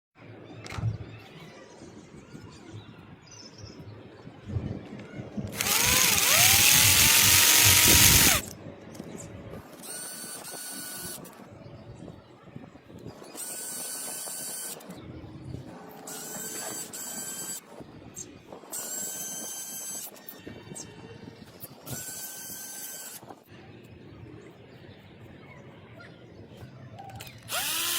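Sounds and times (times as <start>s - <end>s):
small engine whining: 5.6s - 8.5s, 27.5s - 27.9s.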